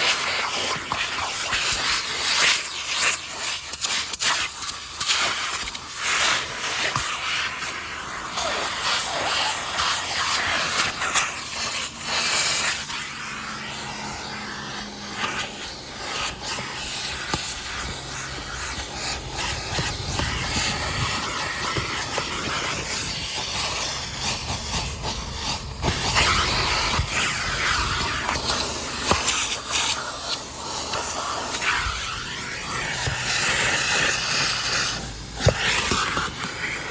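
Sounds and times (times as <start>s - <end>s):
vacuum cleaner suction: 0.0s - 36.9s.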